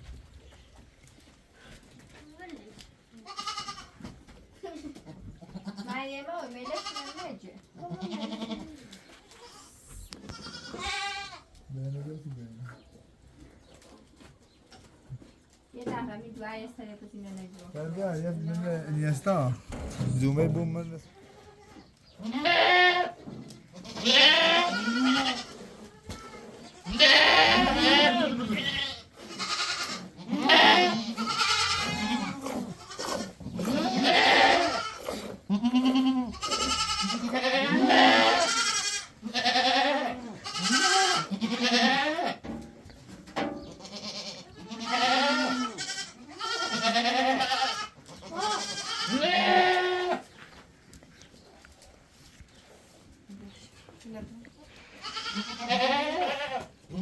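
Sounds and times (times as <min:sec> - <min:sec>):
sheep or goat bleating: 0:03.2 - 0:04.0, 0:05.5 - 0:11.5, 0:20.6 - 0:23.2, 0:23.8 - 0:42.4, 0:43.7 - 0:50.2, 0:55.0 - 0:57.0.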